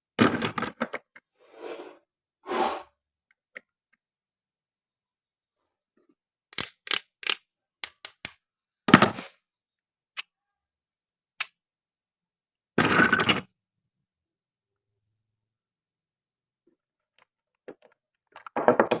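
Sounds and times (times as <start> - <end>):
toy fruit clicks and knocks: 6.5 - 8.4.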